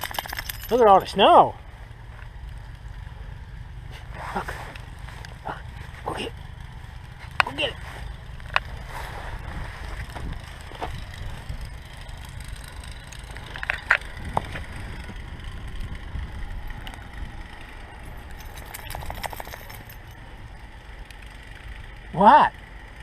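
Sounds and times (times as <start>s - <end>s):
crunching in snow: 7.6s - 11.4s
wind rumbling on microphone: 8.2s - 20.0s.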